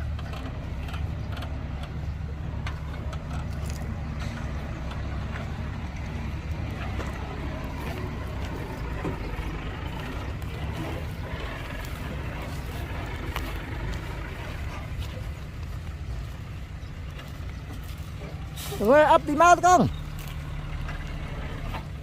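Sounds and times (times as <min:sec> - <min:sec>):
light clanks and clicks: 0:00.0 - 0:10.8
diesel engine rumble: 0:00.0 - 0:22.0.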